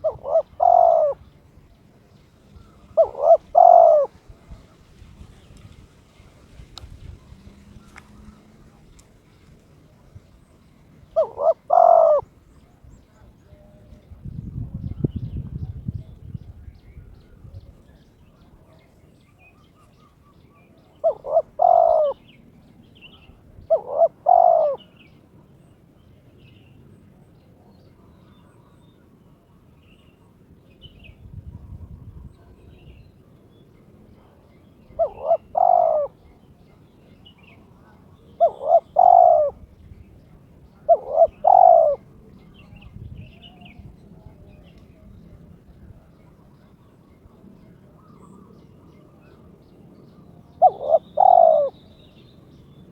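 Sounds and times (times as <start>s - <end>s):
dove cooing: 0.0s - 1.3s, 2.6s - 4.7s, 11.0s - 12.7s, 20.2s - 22.4s, 23.6s - 25.1s, 34.2s - 36.5s, 37.8s - 39.7s, 40.8s - 42.6s, 50.4s - 51.8s.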